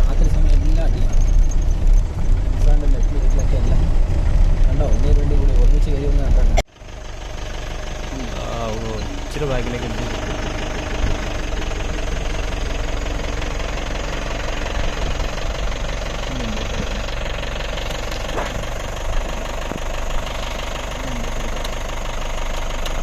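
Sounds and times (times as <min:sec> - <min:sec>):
jeep engine running: 0:00.0 - 0:23.0.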